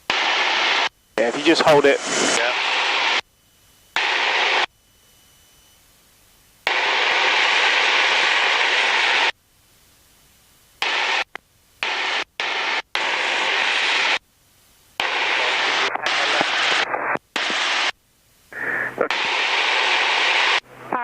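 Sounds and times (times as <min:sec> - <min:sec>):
aircraft cabin engine and airflow: 0:00.0 - 0:04.8, 0:06.7 - 0:09.4, 0:15.0 - 0:21.0.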